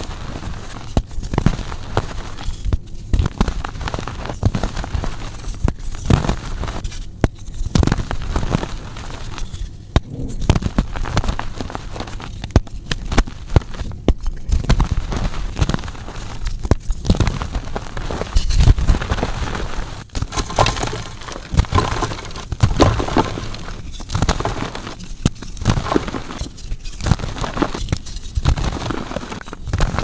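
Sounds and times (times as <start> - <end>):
chalk being crushed: 20.2 - 25.0.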